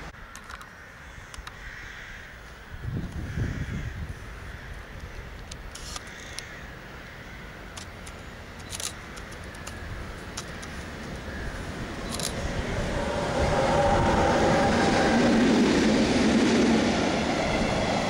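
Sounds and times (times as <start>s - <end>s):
sharp clicks of train: 0.2s - 1.6s, 4.7s - 6.5s, 7.7s - 11.3s, 12.0s - 12.7s
freight train rumbling: 6.7s - 18.0s.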